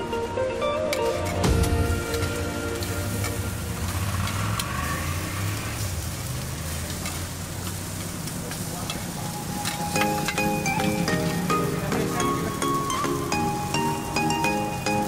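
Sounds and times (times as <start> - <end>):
background music: 0.0 - 5.2, 9.2 - 15.0
food sizzling on a griddle: 1.0 - 15.0.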